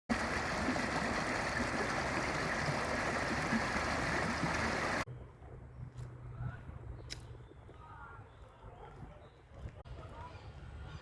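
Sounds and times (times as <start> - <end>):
rushing water: 0.1 - 5.1.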